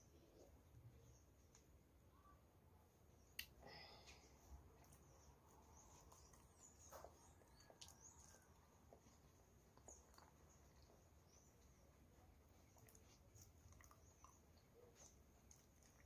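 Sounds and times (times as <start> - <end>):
wet chewing sounds: 4.5 - 16.0.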